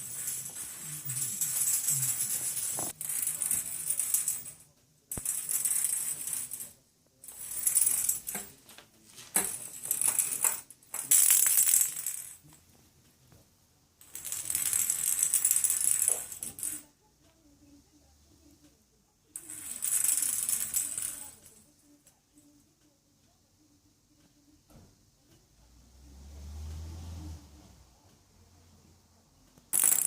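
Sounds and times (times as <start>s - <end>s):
high jingling rattle: 0.0s - 4.5s.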